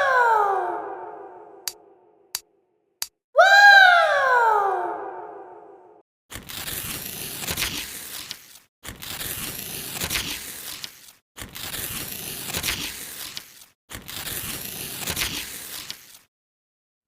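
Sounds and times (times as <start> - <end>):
packaging crinkling and tearing: 6.3 - 16.3.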